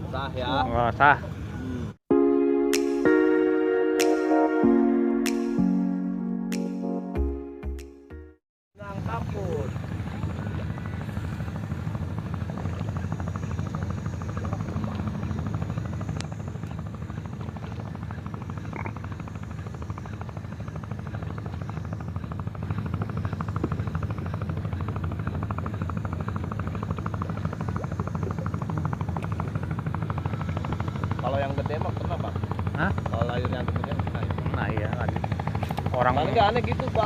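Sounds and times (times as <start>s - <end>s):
boat engine chugging: 8.8s - 37.0s.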